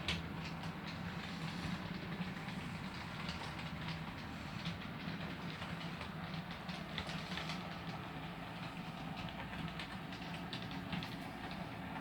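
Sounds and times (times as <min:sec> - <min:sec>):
wheels clicking over rail joints: 0:00.0 - 0:12.0.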